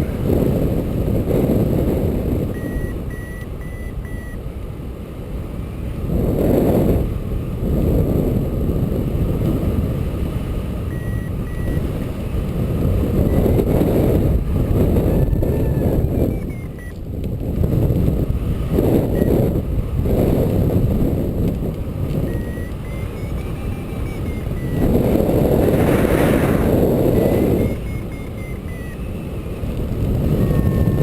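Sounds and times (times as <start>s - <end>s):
wind rushing on microphone: 0.0s - 31.0s
variometer beeping: 2.3s - 4.4s, 10.8s - 17.2s, 18.7s - 19.6s, 21.4s - 31.0s.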